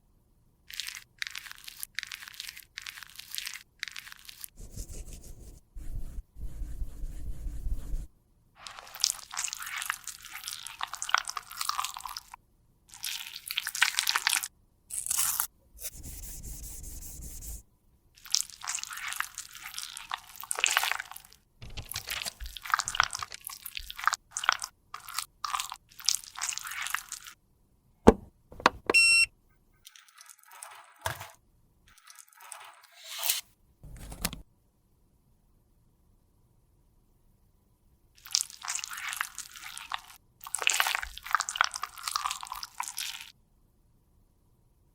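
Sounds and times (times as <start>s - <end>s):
crunching and scraping with tools: 21.6s - 23.5s.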